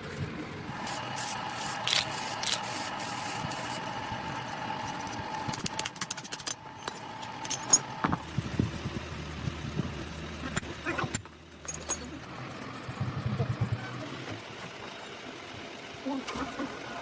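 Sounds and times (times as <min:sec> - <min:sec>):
workshop machine whining: 0:00.0 - 0:17.0
metal clicks and knocks: 0:05.5 - 0:08.2.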